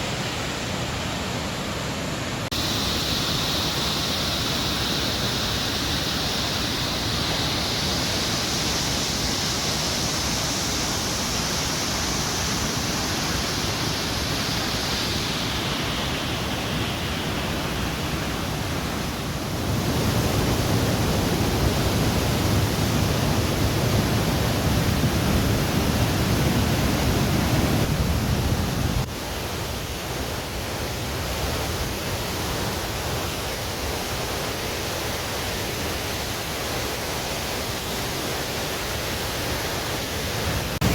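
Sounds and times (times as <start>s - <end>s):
waterfall roaring: 0.0s - 40.9s.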